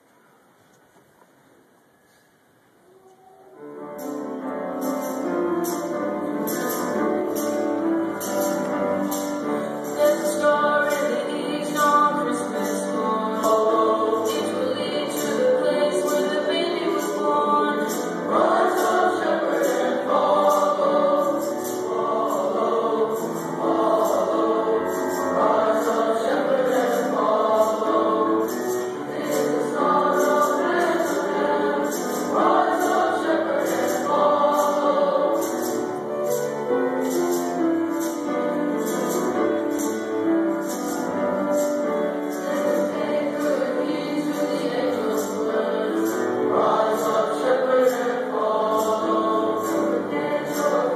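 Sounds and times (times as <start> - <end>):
choir singing in parts: 5.0 - 50.9
high percussion beat: 16.9 - 35.9.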